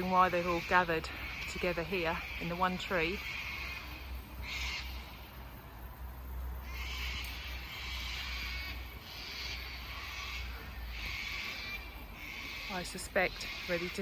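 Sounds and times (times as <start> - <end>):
cockatoos screeching: 0.0 - 5.3, 6.6 - 14.0.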